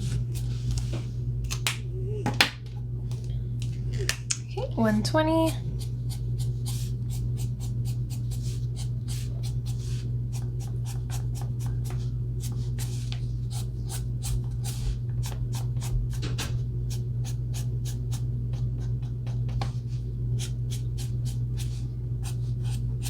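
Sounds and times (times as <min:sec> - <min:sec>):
steady low hum: 0:00.0 - 0:23.0
marker scratching on paper: 0:06.1 - 0:15.0.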